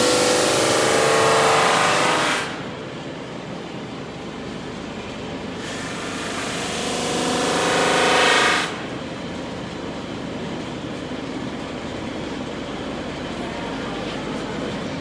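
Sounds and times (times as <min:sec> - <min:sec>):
drum sander sanding a board: 0:05.6 - 0:08.7
sander hum running unloaded: 0:05.6 - 0:09.1.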